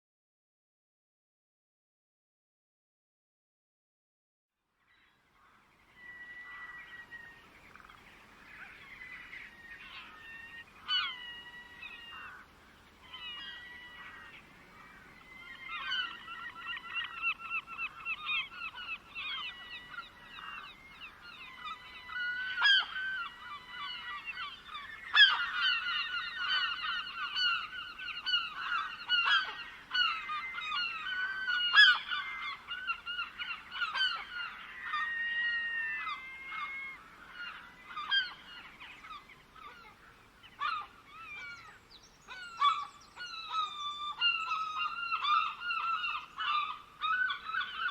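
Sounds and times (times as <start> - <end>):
flock of birds calling: 4.9 - 47.9
loud sharp bird calls: 13.1 - 47.9.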